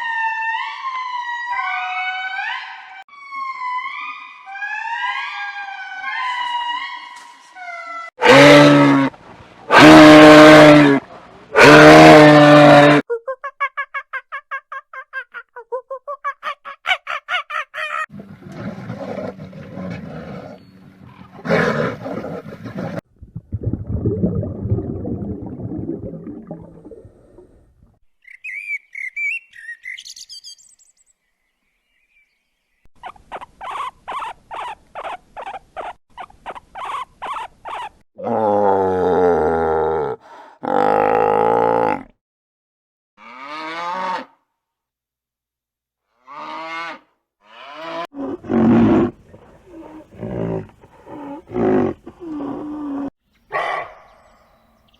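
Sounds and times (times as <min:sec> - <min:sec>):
long deep animal calls: 0:38.2 - 0:42.1.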